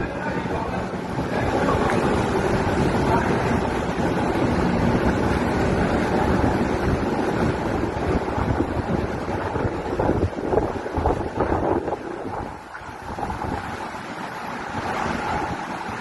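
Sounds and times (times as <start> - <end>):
storm waves breaking against pier: 0.0 - 16.0
wind buffeting microphone: 0.0 - 16.0.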